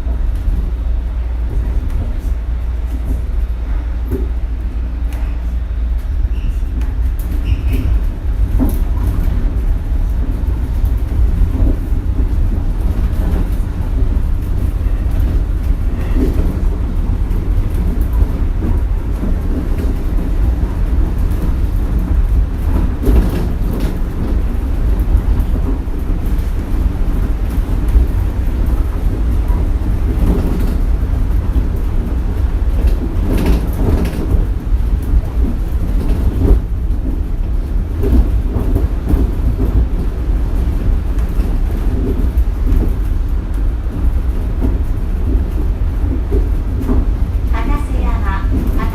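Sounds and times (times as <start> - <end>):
monorail cabin rumble: 0.0 - 48.9
knocks and rattles: 7.3 - 43.2.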